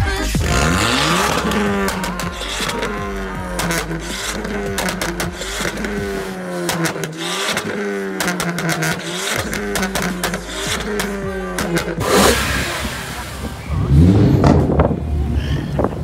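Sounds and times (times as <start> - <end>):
car engines revving: 0.0 - 16.0
sharp cracks: 0.5 - 12.7.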